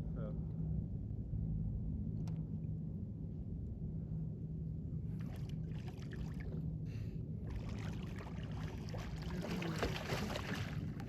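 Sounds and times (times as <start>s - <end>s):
steady low rumble: 0.0s - 11.0s
water splashing and trickling: 5.2s - 6.6s, 7.5s - 11.0s.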